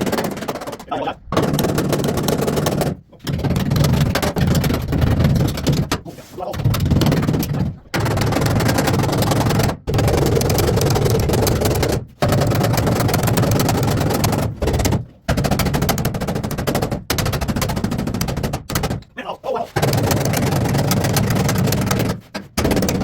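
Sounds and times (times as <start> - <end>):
air hammer rattling on sheet metal: 0.0 - 19.1, 19.7 - 23.0.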